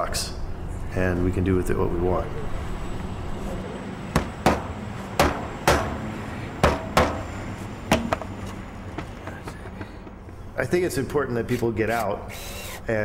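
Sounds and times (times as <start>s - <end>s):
low hum: 0.0s - 11.2s
sharp ringing knocks: 4.1s - 8.4s.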